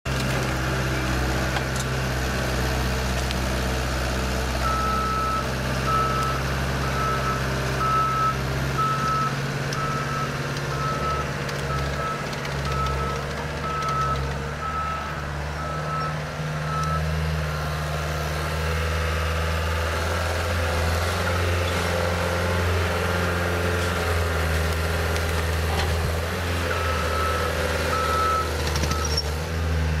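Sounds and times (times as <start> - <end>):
skid steer engine running: 0.1 - 30.0
backup alarm beeping: 26.7 - 29.1.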